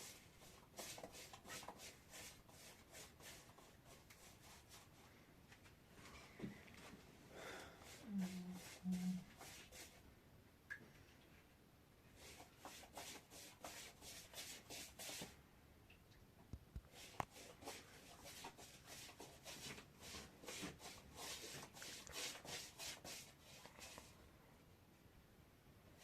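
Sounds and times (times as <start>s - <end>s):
faint rubbing strokes: 0.0s - 7.1s, 7.8s - 10.0s, 12.1s - 15.4s, 16.9s - 24.2s.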